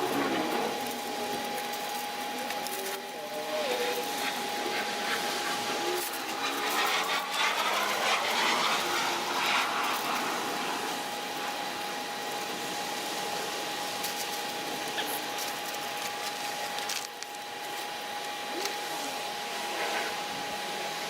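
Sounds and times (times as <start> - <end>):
hiss: 0.0 - 21.0
power tool motor whine: 0.0 - 21.0.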